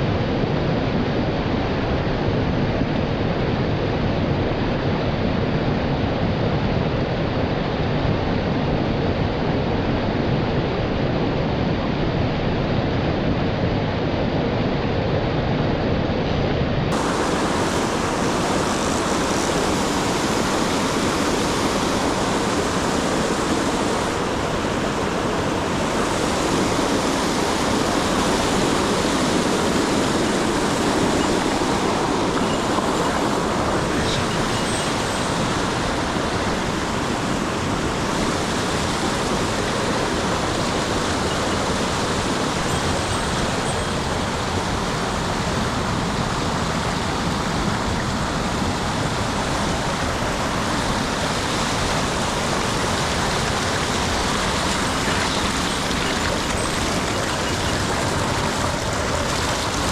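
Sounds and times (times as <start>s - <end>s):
river water rushing: 16.9s - 59.9s.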